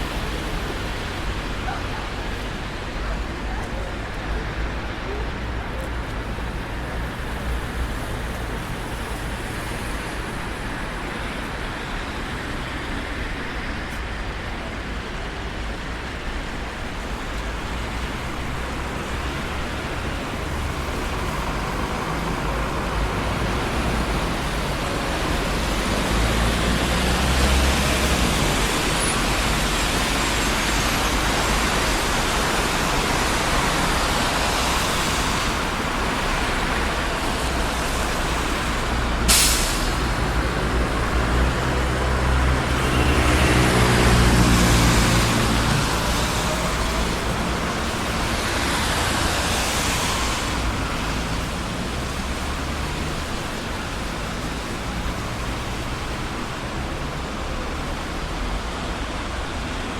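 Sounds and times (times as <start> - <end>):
passing vehicles: 0.0 - 59.9
sharp hiss: 37.7 - 40.5.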